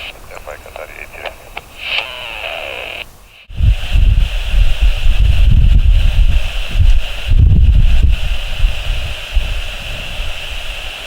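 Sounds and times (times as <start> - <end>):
high-pitched hiss: 0.0 - 11.0
wind buffeting microphone: 3.5 - 11.0.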